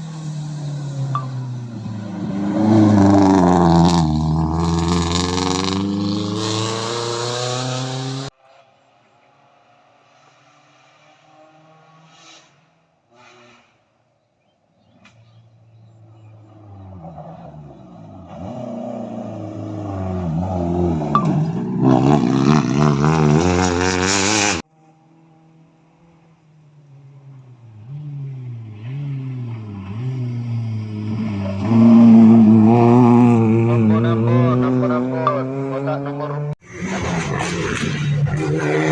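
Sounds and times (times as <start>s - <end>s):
rally car engine revving: 0.0s - 8.3s, 15.2s - 38.9s.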